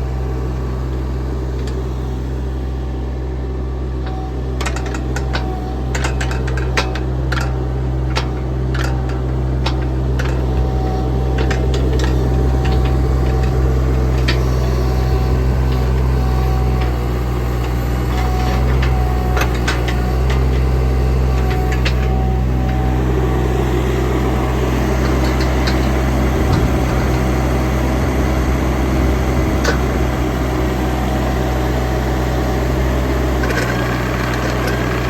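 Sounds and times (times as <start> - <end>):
excavator diesel engine running: 0.0 - 35.0
sharp metallic clicks and knocks: 4.0 - 22.8, 24.4 - 27.4, 33.4 - 35.0.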